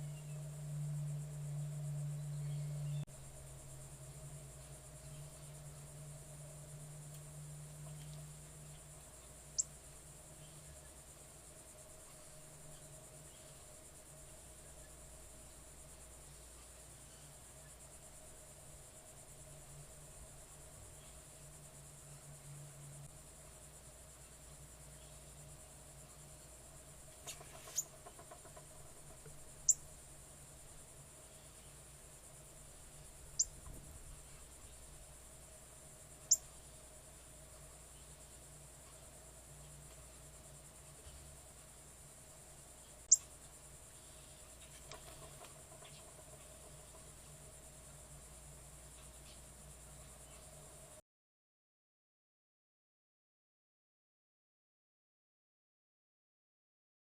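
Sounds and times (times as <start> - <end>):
insects trilling: 0.0 - 51.0
bird chip calls: 27.2 - 28.4.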